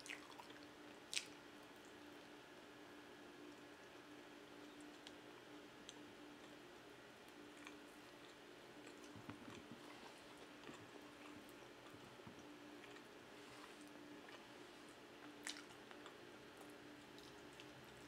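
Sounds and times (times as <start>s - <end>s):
chewing and mouth sounds: 0.0s - 2.0s, 7.2s - 18.0s
faint steady hum: 0.0s - 18.0s.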